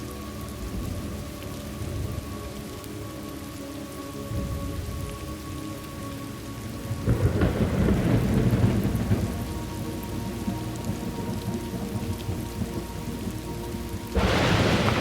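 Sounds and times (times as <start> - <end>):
steady rain: 0.0 - 15.0
thunder rumbling: 6.9 - 15.0.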